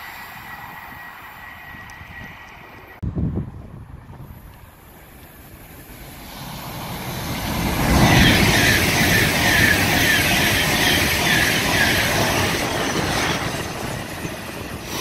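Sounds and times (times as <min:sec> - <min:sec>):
train wheels rushing on rail: 0:03.8 - 0:15.0.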